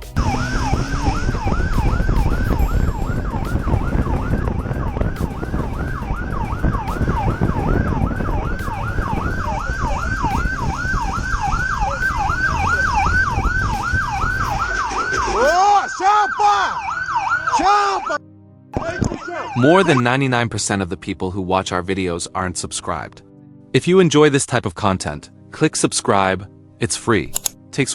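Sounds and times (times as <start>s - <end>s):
engine and wind rumble: 0.0s - 15.0s
lower sweeping siren tone: 0.2s - 18.2s
police siren yelping: 0.2s - 18.2s, 18.8s - 20.0s.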